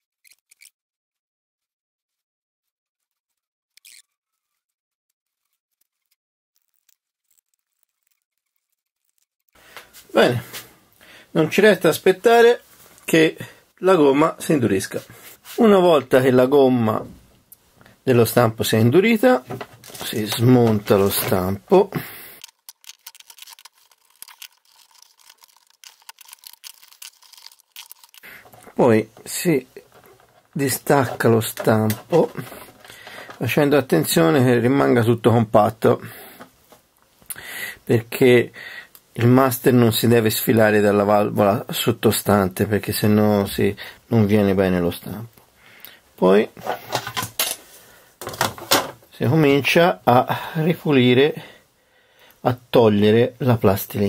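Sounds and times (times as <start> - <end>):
plastic bricks clicking and rattling: 22.4 - 33.4.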